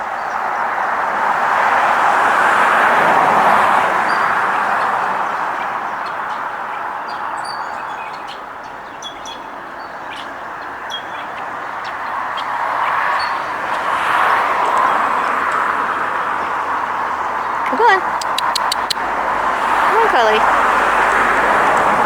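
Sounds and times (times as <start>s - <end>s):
road traffic hiss: 0.0s - 22.0s
small birds chirping: 5.3s - 15.6s, 16.2s - 20.6s.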